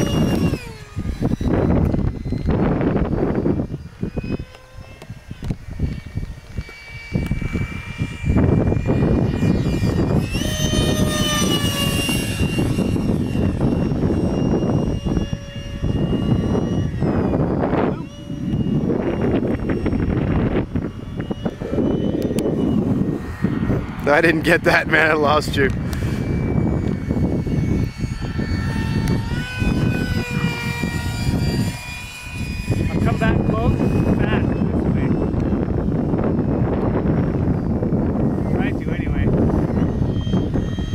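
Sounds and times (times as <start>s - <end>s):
electric ducted fan whining: 0.0s - 40.9s
wind rumble on microphone: 0.0s - 40.9s.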